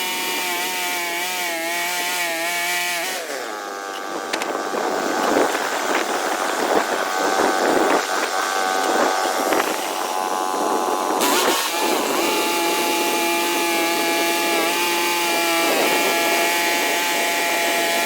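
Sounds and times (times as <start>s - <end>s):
sawmill engine running: 0.0s - 18.0s.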